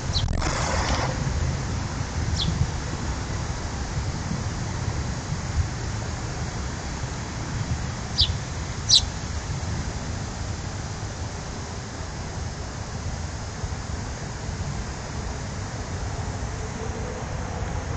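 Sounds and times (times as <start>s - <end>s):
high bird chirps: 0.0s - 0.4s, 2.3s - 2.6s, 8.2s - 9.1s.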